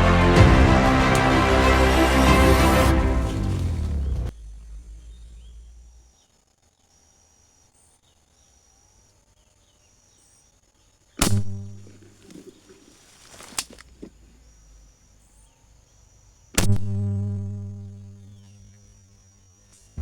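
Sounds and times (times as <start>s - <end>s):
low hum: 0.0s - 6.4s
birds or insects chirping: 0.0s - 20.0s.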